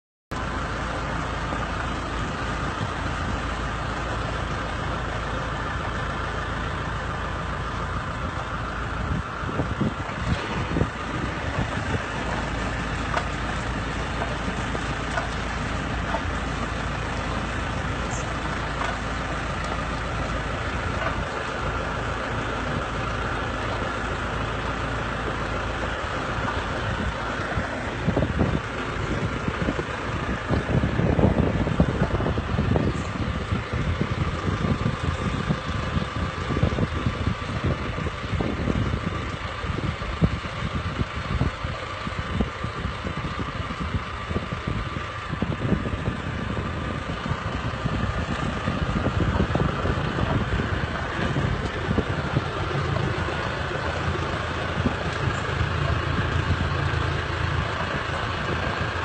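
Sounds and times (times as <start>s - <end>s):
machine engine running: 0.3s - 59.0s
knocks and rattles: 10.1s - 21.8s.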